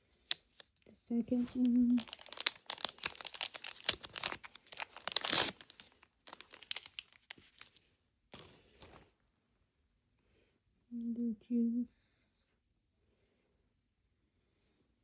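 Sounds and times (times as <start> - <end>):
plastic packet crinkling: 1.3 - 9.0.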